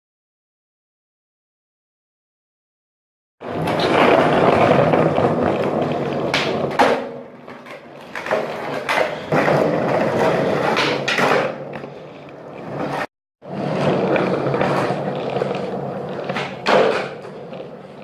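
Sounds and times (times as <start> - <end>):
skateboard clacking on ground: 3.4 - 18.0
skateboard wheels rolling on pavement: 3.4 - 18.0.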